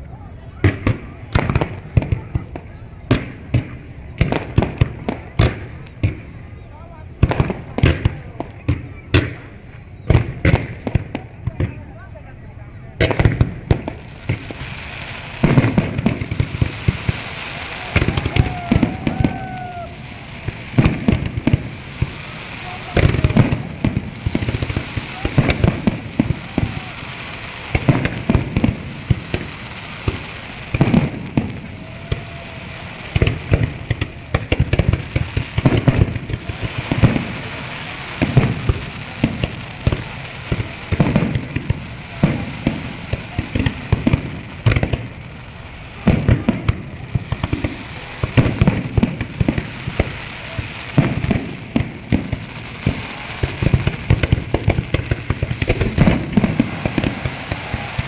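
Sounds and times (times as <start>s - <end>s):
crowd noise: 0.0s - 58.0s
fireworks bangs and booms: 0.0s - 58.0s
fireworks crackle hiss: 0.0s - 58.0s.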